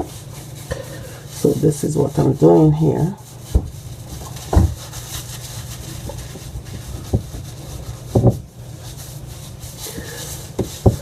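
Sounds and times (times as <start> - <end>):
hands scrubbing wet hair: 0.0 - 11.0.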